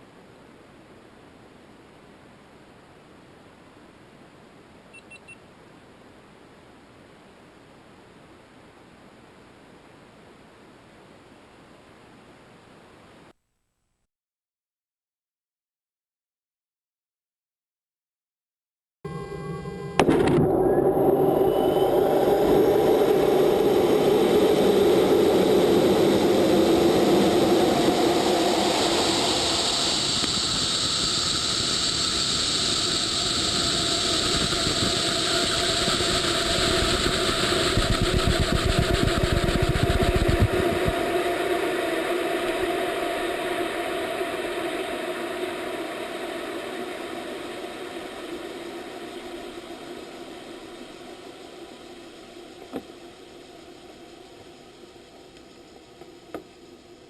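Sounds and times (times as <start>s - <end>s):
rocket engine rumble: 20.0s - 54.0s.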